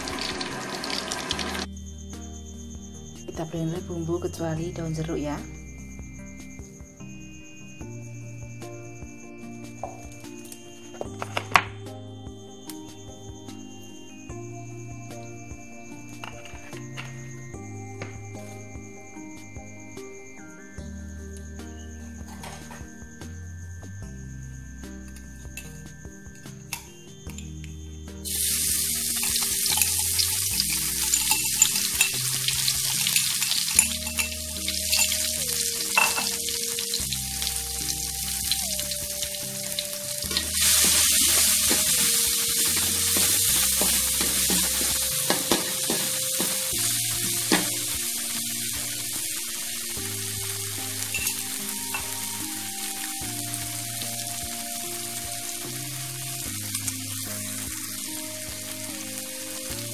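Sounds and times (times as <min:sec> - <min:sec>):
food sizzling in hot oil: 0:00.0 - 0:01.7, 0:28.2 - 0:59.9.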